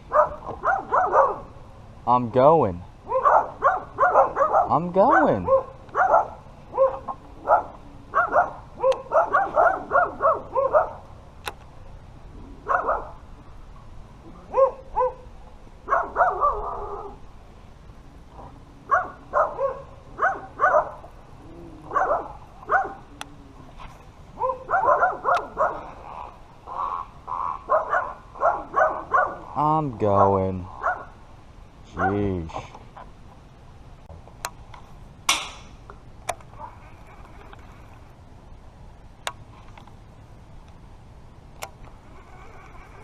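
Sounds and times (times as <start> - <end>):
animal barking or honking: 24.4 - 31.1.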